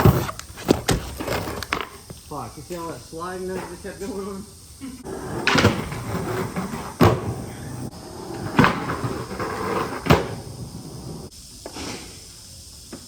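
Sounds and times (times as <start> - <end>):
skateboard rolling on concrete: 0.0 - 13.0
skateboard clacks: 5.1 - 11.3.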